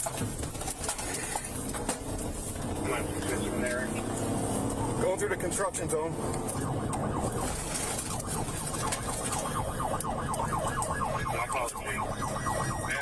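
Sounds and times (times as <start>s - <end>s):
low rumble of vehicle noise: 0.0s - 13.0s
police siren yelping: 2.6s - 13.0s.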